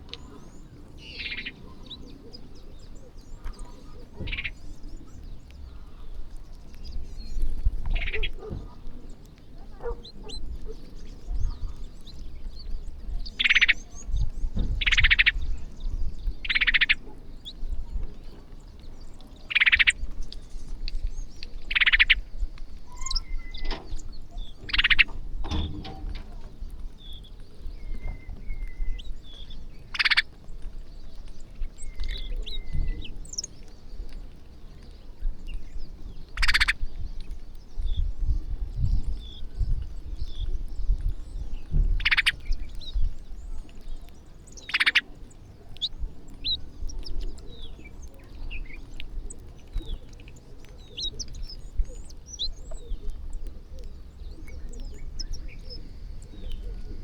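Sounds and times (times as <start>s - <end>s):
harsh bird calls: 0.0s - 8.7s, 13.2s - 17.6s, 19.2s - 20.1s, 21.3s - 30.7s, 36.3s - 36.9s, 41.7s - 57.0s.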